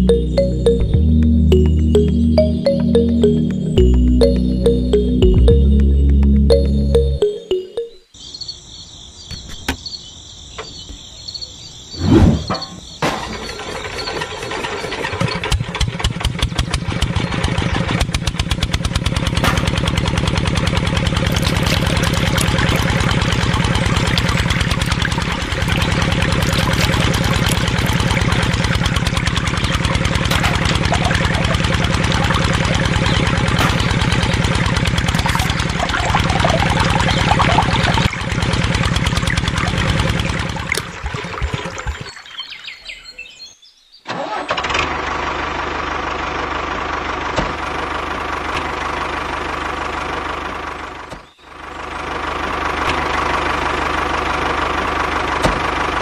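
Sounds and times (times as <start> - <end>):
background music: 0.0 - 8.1
small engine chugging: 13.3 - 42.2, 44.2 - 56.0.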